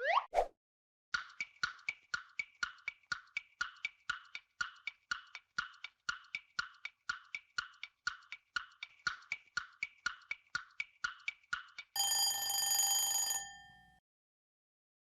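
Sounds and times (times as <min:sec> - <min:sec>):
timer tick-tock: 0:01.2 - 0:13.5.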